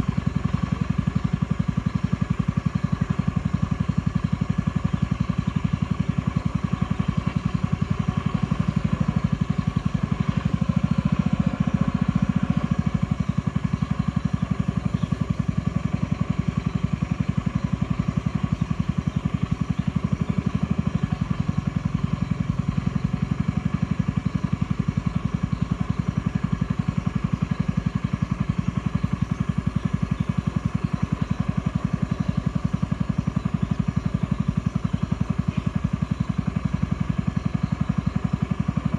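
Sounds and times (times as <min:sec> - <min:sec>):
boat motor running: 0:00.0 - 0:38.9.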